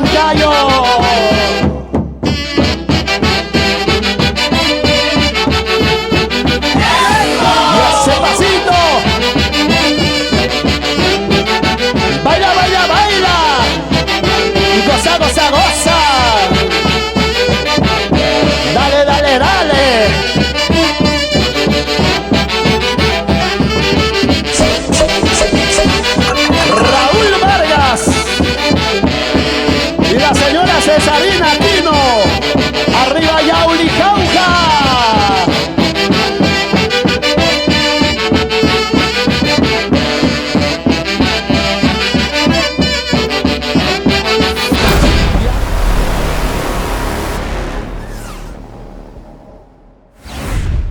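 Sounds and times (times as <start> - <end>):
brass and accordion dance music: 0.0 - 45.1
dance orchestra brass melody: 24.2 - 31.2, 43.0 - 50.1.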